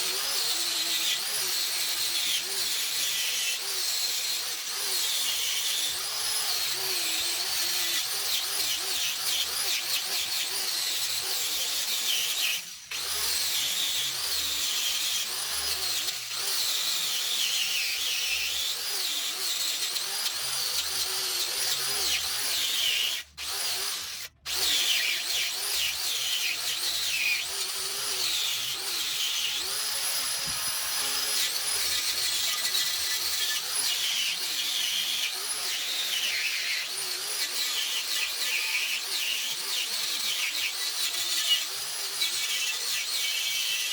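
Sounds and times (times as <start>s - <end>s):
power tool whining and scratching: 0.0s - 43.9s.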